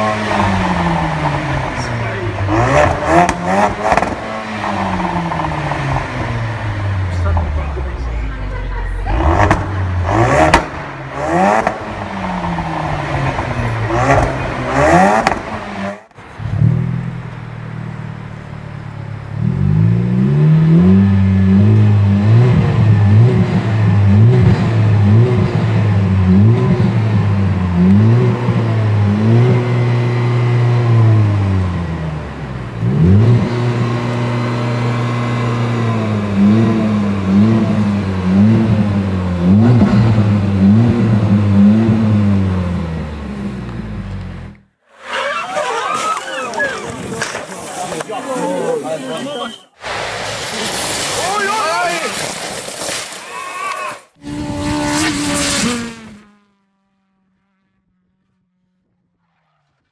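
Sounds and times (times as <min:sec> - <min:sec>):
exhaust cracks: 0:00.0 - 0:18.6, 0:32.6 - 0:56.4
car engine revving: 0:00.0 - 0:47.4, 0:54.2 - 0:59.9.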